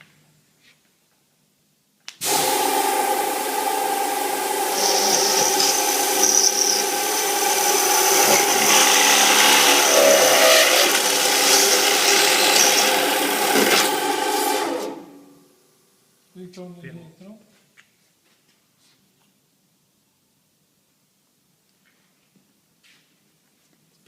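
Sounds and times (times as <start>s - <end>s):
drilling machine whining: 2.2s - 15.2s.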